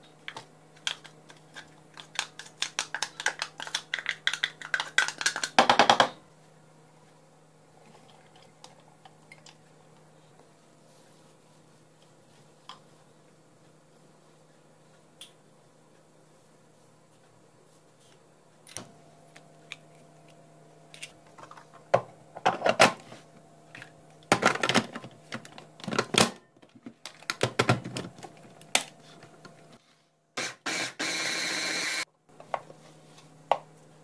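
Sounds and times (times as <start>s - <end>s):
small motor running: 30.4s - 32.0s.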